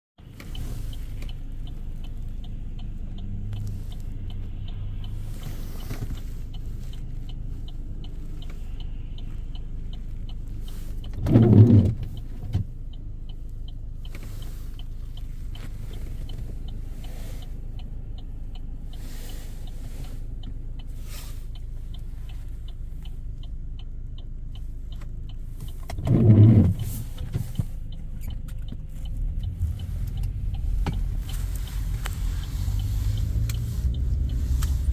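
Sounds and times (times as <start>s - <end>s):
car road and engine rumble: 0.2s - 34.9s
faint ticks: 0.2s - 34.9s.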